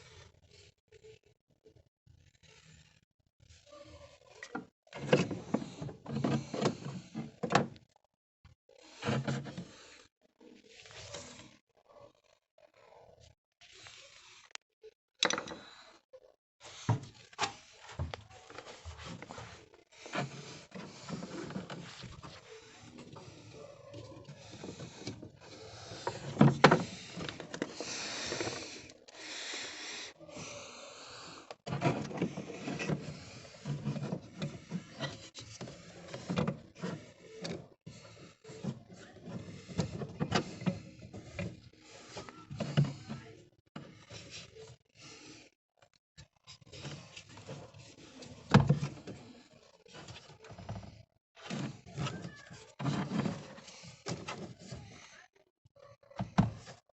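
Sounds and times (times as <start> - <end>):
knocks and clicks of handling: 15.2 - 15.7, 24.2 - 28.7.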